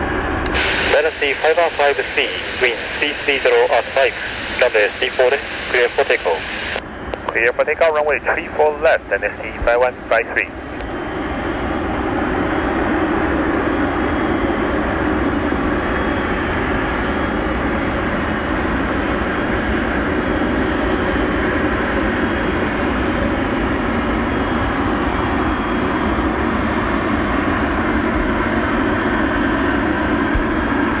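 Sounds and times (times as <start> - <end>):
jet engines roaring: 0.0 - 31.0.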